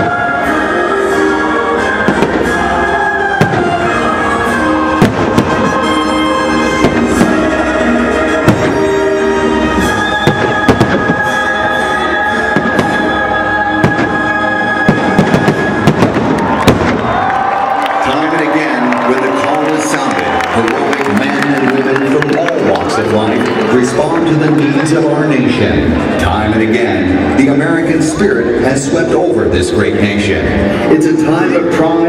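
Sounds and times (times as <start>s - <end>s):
loud music with held notes: 0.0s - 16.6s
fireworks banging: 1.9s - 11.6s, 12.5s - 18.3s.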